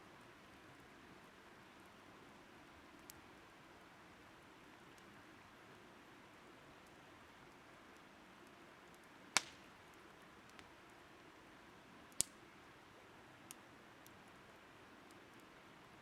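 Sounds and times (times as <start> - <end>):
soft hiss: 0.0 - 16.0
firewood crackling: 0.3 - 3.5, 4.1 - 16.0
sharp pops of fire: 9.3 - 9.7, 12.2 - 12.4.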